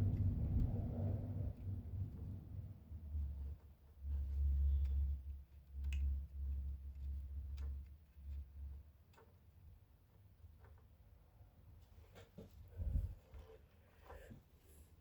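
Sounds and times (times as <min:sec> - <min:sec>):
low rumble: 0:00.0 - 0:08.8, 0:12.7 - 0:13.2.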